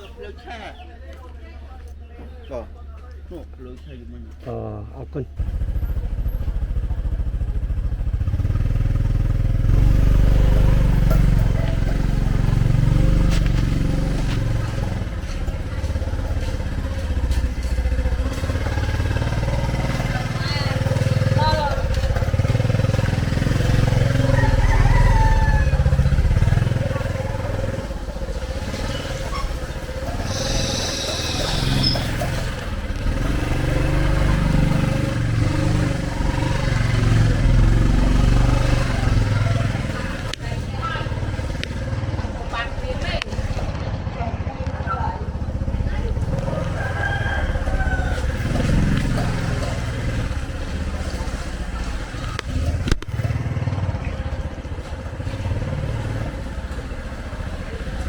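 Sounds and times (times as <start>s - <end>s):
motorcycle engines running: 0.0s - 58.0s
hiss: 30.2s - 32.2s.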